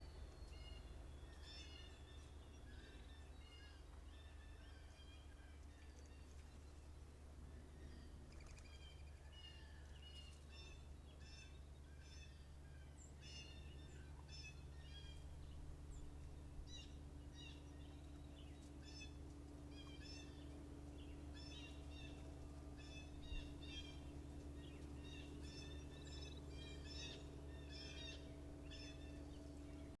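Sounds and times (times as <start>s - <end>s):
steady low hum: 0.0s - 30.0s
wild birds calling: 0.0s - 30.0s.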